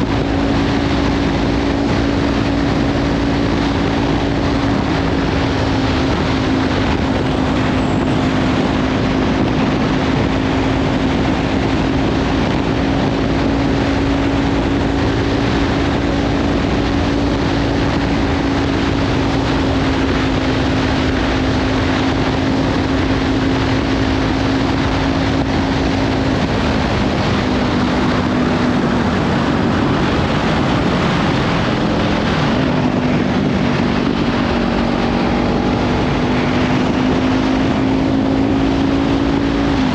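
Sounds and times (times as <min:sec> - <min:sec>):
motorcycle engine cruising: 0:00.0 - 0:39.9
wind noise on microphone: 0:00.0 - 0:39.9.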